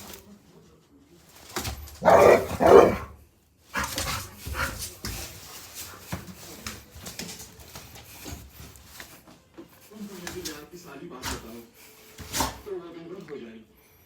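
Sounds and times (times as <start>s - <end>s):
dog barking: 2.0s - 3.1s.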